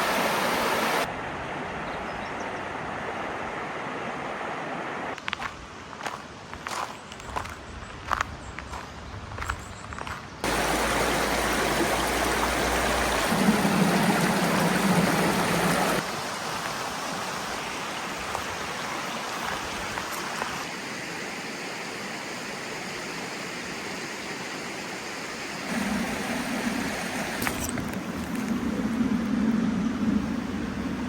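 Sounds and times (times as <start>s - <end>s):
stream rushing over rocks: 0.0s - 1.1s, 10.4s - 23.9s, 24.7s - 28.9s.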